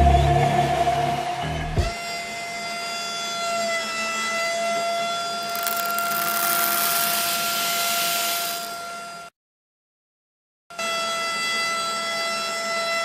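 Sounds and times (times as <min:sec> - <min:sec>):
grain pouring into plastic hopper: 0:05.4 - 0:08.9
steady high-pitched whine: 0:05.4 - 0:09.0.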